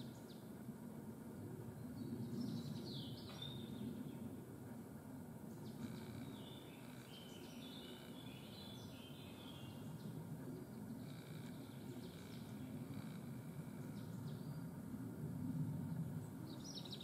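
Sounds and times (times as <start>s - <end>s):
low steady rumble: 0.0s - 17.0s
small birds chirping: 1.8s - 4.4s, 5.2s - 14.7s.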